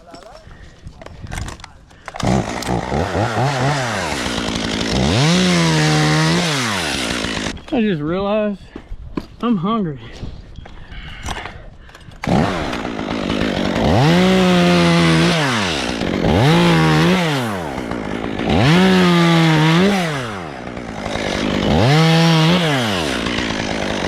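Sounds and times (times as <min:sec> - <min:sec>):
chainsaw engine revving: 0:02.1 - 0:07.6, 0:12.2 - 0:24.0.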